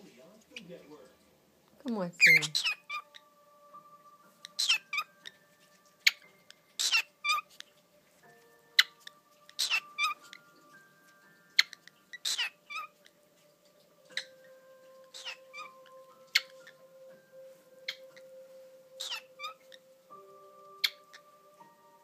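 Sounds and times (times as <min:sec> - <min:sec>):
cockatiel screeching and chirping: 0:02.2 - 0:03.3, 0:04.4 - 0:07.8, 0:08.8 - 0:10.5, 0:11.5 - 0:13.1, 0:14.0 - 0:16.8, 0:17.8 - 0:18.3, 0:19.0 - 0:19.9, 0:20.6 - 0:21.4.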